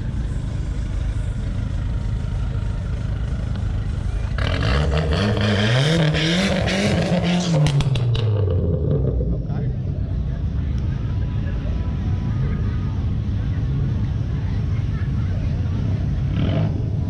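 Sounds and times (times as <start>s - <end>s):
car engine revving through gears: 4.4s - 9.5s.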